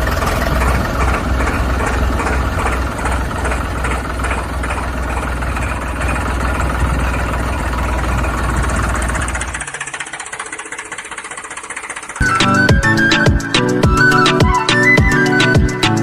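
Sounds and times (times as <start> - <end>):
engine idling with knocking beat: 0.0 - 16.0.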